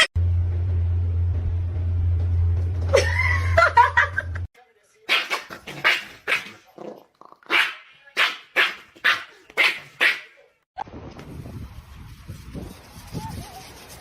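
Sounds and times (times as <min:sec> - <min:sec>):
dog barking: 0:05.1 - 0:06.6, 0:07.5 - 0:10.4.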